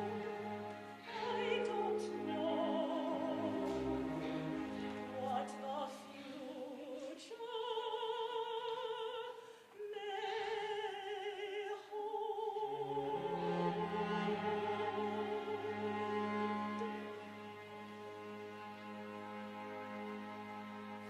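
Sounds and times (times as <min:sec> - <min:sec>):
lower accompanying notes: 0:00.0 - 0:06.4
operatic singing: 0:00.0 - 0:18.0.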